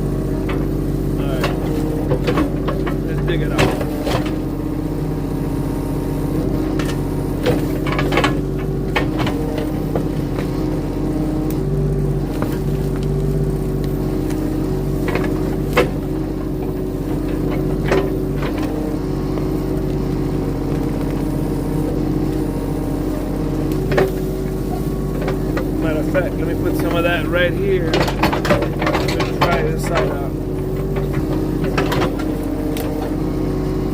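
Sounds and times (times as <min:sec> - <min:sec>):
skid steer engine running: 0:00.0 - 0:33.9
sharp knocks and clanks: 0:01.3 - 0:04.4, 0:06.7 - 0:10.6, 0:23.8 - 0:33.2.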